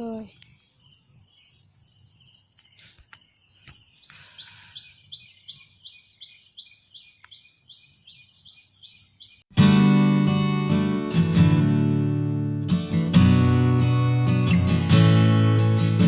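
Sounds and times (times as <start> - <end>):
bird chirping: 0.0 - 9.5
strummed acoustic guitar music: 9.5 - 16.0.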